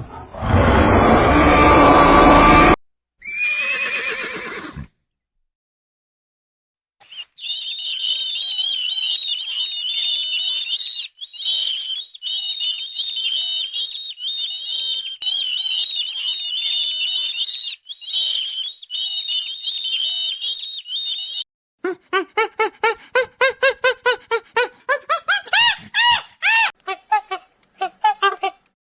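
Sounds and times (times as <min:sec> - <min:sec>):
small birds chirping: 0:07.0 - 0:21.4.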